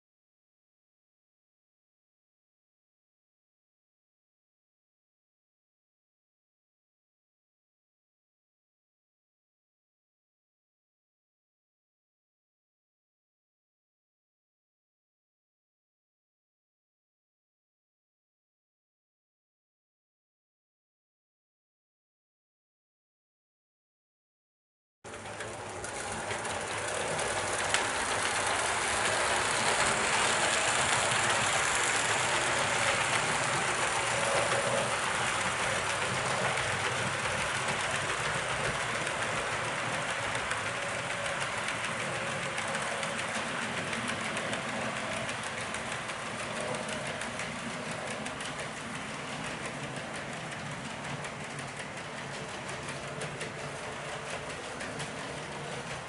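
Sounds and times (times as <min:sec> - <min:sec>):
train wheels clicking on rail joints: 0:25.1 - 0:56.0.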